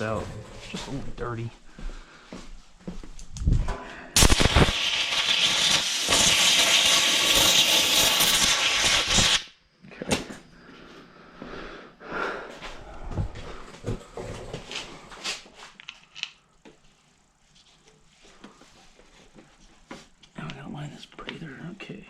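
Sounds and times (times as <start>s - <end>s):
compressed air hissing: 4.2s - 9.5s.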